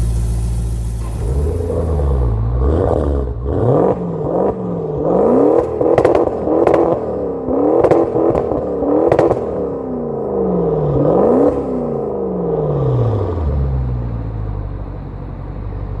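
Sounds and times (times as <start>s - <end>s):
exhaust cracks: 0.0s - 9.7s
car engine revving: 0.0s - 14.5s
car engine idling: 0.0s - 16.0s.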